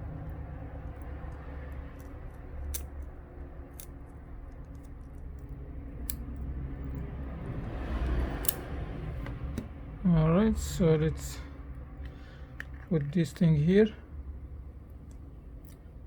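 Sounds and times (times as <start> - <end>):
hand tools clicking on small parts: 0.9 - 7.1, 8.0 - 8.7.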